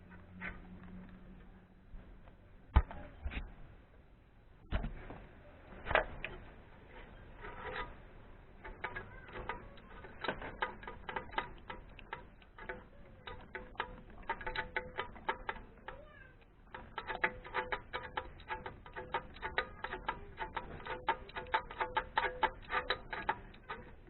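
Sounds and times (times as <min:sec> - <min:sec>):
ratchet wrench clicking: 0:08.6 - 0:16.0, 0:16.7 - 0:24.0.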